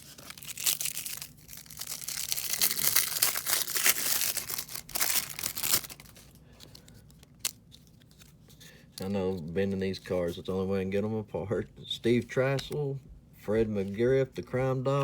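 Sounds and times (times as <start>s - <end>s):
card pack wrapper tearing: 0.0s - 8.2s.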